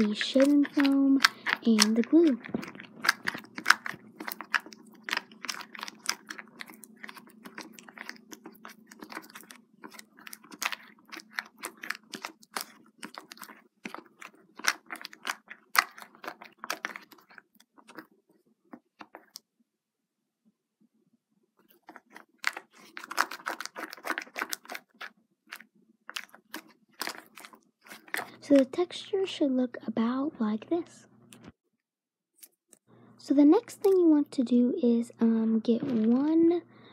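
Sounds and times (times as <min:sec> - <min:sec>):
wet squishing and clicking: 0:00.0 - 0:19.5, 0:21.6 - 0:28.8, 0:33.6 - 0:34.0.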